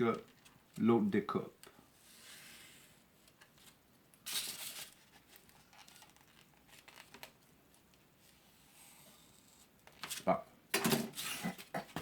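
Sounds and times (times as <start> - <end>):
styrofoam scrape: 11.1 - 11.6.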